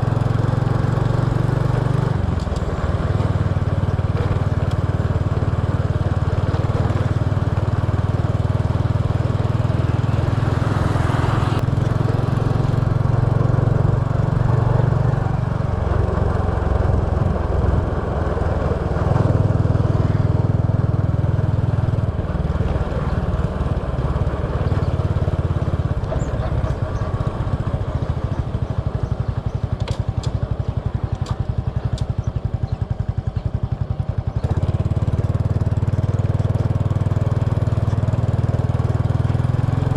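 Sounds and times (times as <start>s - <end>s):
motorbike engine running: 0.0s - 39.9s
wind and road noise: 0.0s - 39.9s.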